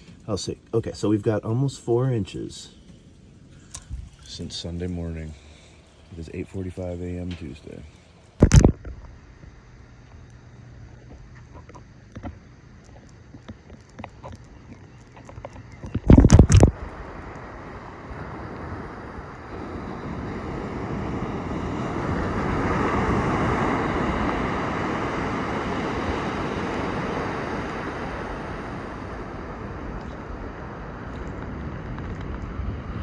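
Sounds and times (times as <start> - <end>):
wind buffeting microphone: 3.6 - 5.4, 13.6 - 33.0
waves rushing on a beach: 16.2 - 33.0.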